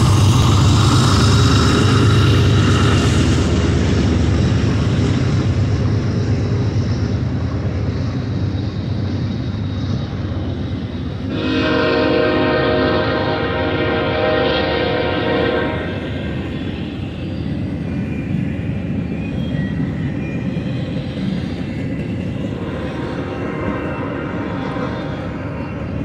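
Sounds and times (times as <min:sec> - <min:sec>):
diesel locomotives rumbling: 0:00.0 - 0:26.0
freight cars rolling on rails: 0:00.0 - 0:26.0
multi-note train horn: 0:11.3 - 0:16.2.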